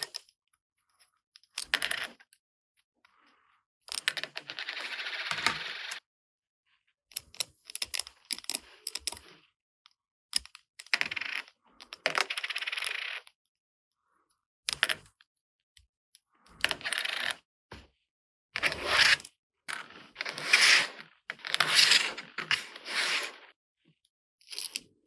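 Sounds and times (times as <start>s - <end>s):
plastic toy parts clicking: 24.5s - 24.9s.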